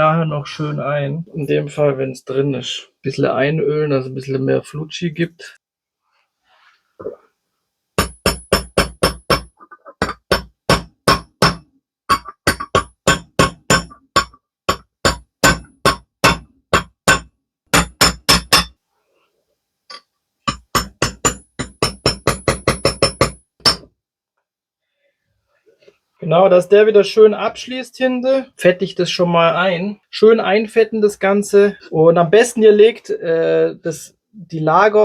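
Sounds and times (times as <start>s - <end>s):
hammer tapping on metal: 8.0s - 18.8s, 20.5s - 23.9s.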